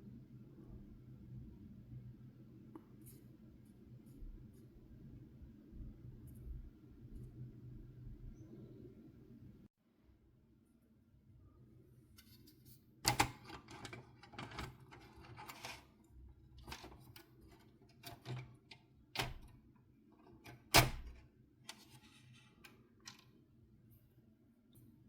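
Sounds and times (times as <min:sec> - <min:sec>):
clicks and knocks of parts handled: 0:16.6 - 0:19.6.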